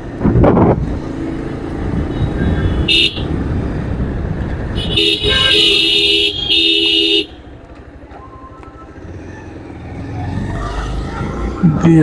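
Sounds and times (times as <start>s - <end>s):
road and engine rumble: 0.0s - 12.0s
vehicle horn honking: 2.1s - 3.3s, 4.8s - 7.4s.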